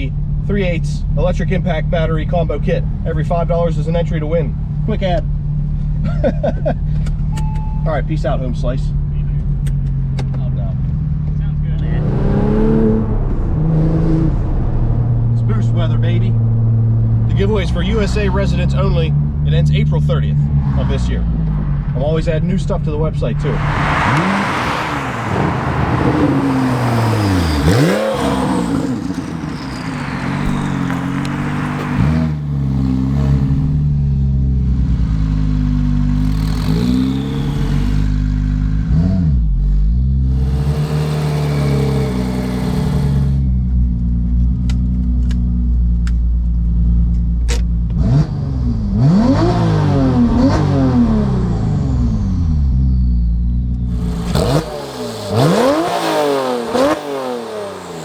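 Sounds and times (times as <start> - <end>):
car engine revving: 8.5 - 44.0, 47.9 - 58.0.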